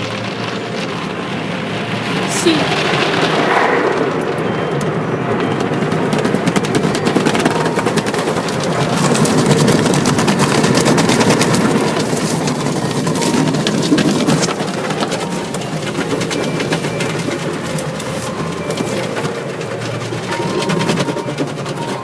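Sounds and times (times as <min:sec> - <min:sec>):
rushing water noise: 0:00.0 - 0:05.0
rapid drumming of small hits: 0:00.0 - 0:22.0.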